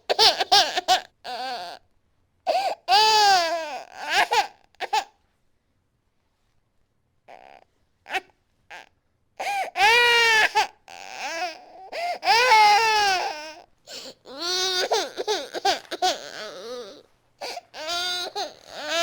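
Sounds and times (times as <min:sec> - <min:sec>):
infant crying and screaming: 0:02.5 - 0:05.1, 0:07.3 - 0:19.0.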